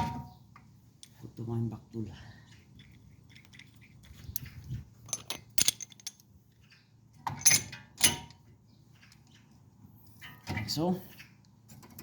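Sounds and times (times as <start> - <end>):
metallic clanks: 2.8 - 9.5.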